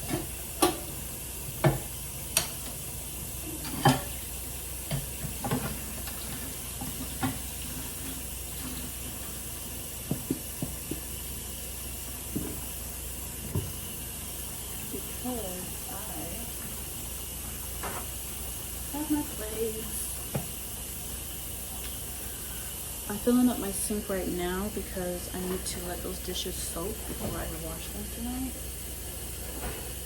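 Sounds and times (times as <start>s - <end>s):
tap running into sink: 1.6s - 2.8s, 4.8s - 9.0s, 10.0s - 11.2s, 12.2s - 12.8s, 13.4s - 13.9s, 20.3s - 20.6s.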